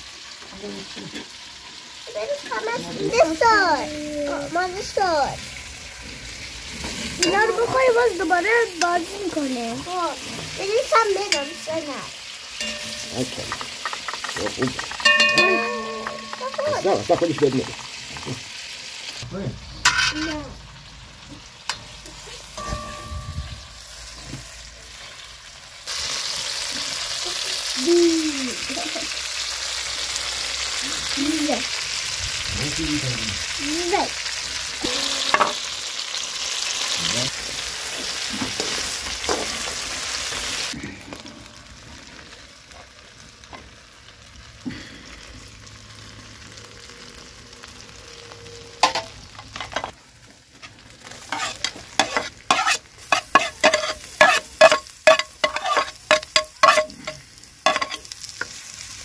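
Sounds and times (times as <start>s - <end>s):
chicken sizzling in hot oil: 0.0s - 59.0s
metal spoon scraping a pot: 51.2s - 58.1s.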